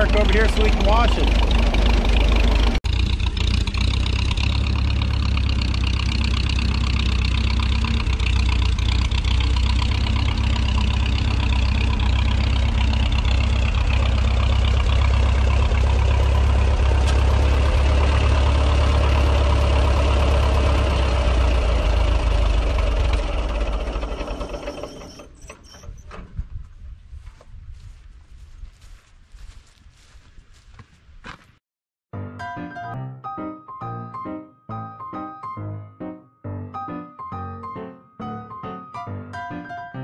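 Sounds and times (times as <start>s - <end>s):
tractor engine rumbling: 0.0s - 28.8s.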